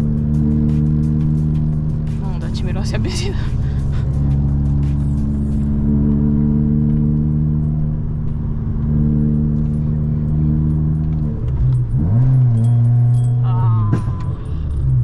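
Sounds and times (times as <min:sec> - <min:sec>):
car engine running: 0:00.0 - 0:15.0
faint light clinking: 0:11.6 - 0:15.0.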